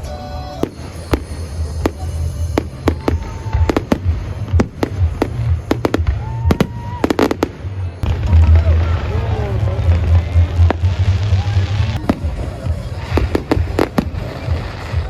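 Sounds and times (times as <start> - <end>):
fireworks bangs: 0.0 - 15.0
whistling fireworks rising: 0.0 - 15.0.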